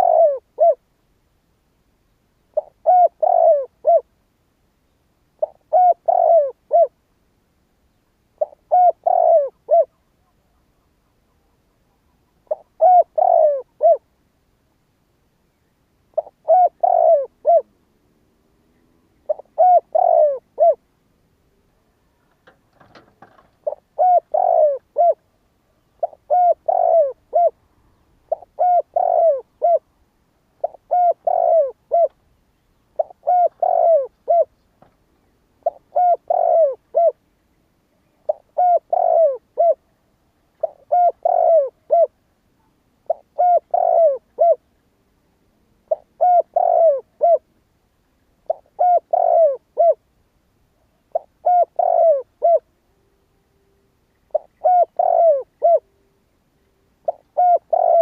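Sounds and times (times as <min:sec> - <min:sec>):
dove cooing: 0:00.0 - 0:00.9, 0:02.5 - 0:04.1, 0:05.4 - 0:07.0, 0:08.4 - 0:14.1, 0:16.1 - 0:17.8, 0:18.6 - 0:20.9, 0:22.1 - 0:29.9, 0:30.6 - 0:32.2, 0:33.0 - 0:34.6, 0:35.6 - 0:37.2, 0:38.0 - 0:44.7, 0:45.8 - 0:47.5, 0:48.4 - 0:50.0, 0:51.0 - 0:56.2, 0:56.8 - 0:58.0.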